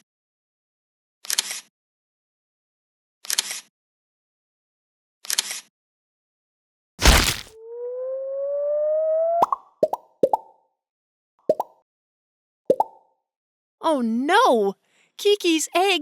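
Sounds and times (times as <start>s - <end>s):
loud cartoon thud: 7.0s - 7.5s.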